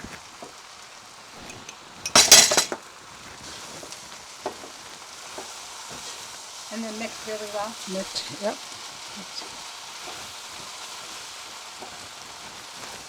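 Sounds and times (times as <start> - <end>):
noodles sizzling: 0.0 - 13.0
metal utensil clattering on pan: 1.4 - 2.8.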